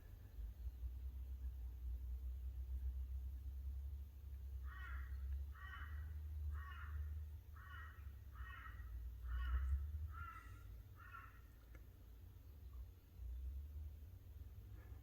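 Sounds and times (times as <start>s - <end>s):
crow cawing: 4.6s - 11.5s.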